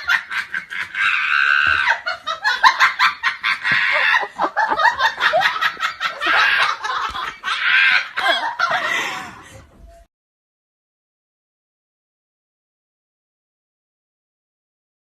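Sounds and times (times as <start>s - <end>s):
person laughing hard: 0.0s - 9.5s.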